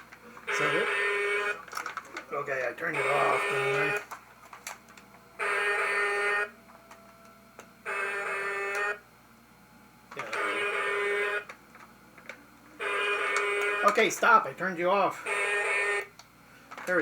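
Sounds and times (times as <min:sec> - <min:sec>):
buzzy electronic toy horn: 0:00.5 - 0:01.6, 0:02.9 - 0:04.0, 0:05.4 - 0:06.6, 0:07.8 - 0:09.0, 0:10.3 - 0:11.5, 0:12.8 - 0:14.0, 0:15.2 - 0:16.1.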